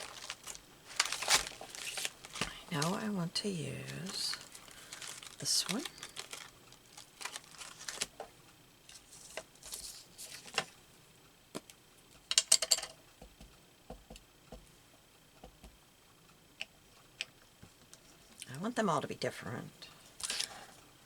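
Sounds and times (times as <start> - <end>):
paper rustling: 0.0 - 3.0, 3.8 - 8.2, 8.9 - 10.7, 20.2 - 20.8.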